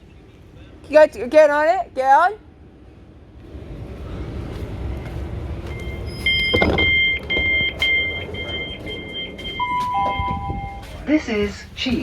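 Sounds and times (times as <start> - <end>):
train rumble: 0.0 - 12.0
door-closing warning beeps: 5.6 - 11.0.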